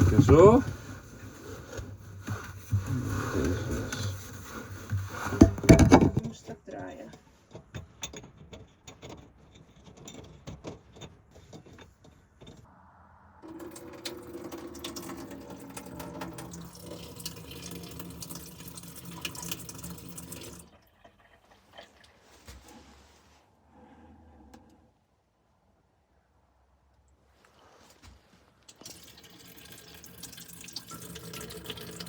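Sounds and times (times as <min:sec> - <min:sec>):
water running in a stream: 0:13.4 - 0:22.2, 0:28.7 - 0:32.0.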